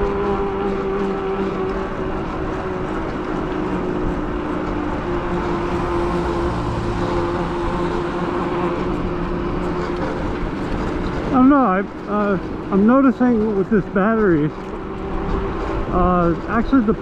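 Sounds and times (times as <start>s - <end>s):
electric motor whine: 0.0s - 10.8s
wind and road noise: 0.0s - 17.0s.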